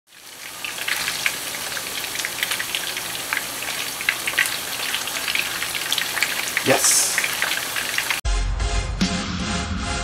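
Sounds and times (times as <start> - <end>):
food sizzling in hot oil: 0.1 - 8.2.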